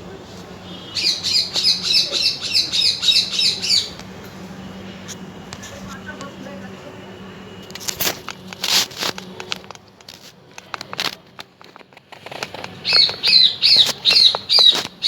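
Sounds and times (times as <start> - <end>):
bird chirping: 0.8 - 4.0, 12.7 - 15.0.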